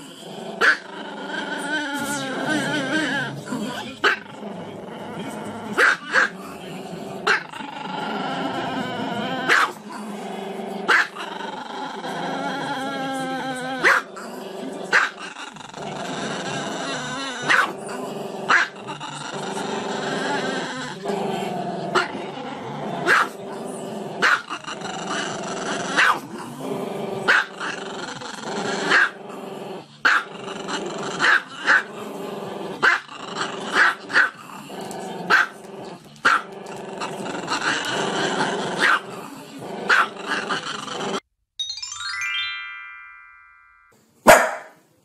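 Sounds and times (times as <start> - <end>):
dog barking: 5.8 - 6.3, 9.5 - 9.8, 10.9 - 11.2, 13.8 - 14.1, 14.9 - 15.2, 17.5 - 17.7, 18.5 - 18.7, 23.0 - 23.4, 24.2 - 24.4, 26.0 - 26.2, 27.3 - 27.5, 28.9 - 29.2, 30.1 - 30.3, 35.3 - 35.6, 38.8 - 39.0, 39.9 - 40.1, 44.3 - 44.8.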